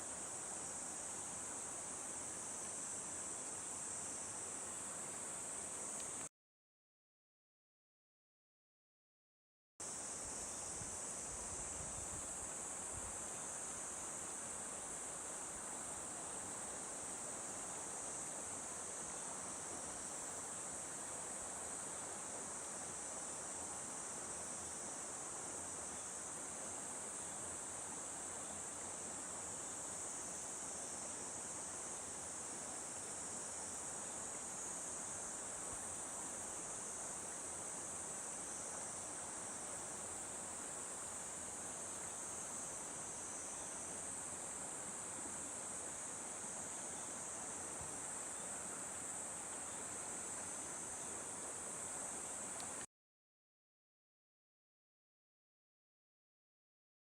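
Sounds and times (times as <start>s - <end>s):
insects chirring: 9.8s - 52.8s.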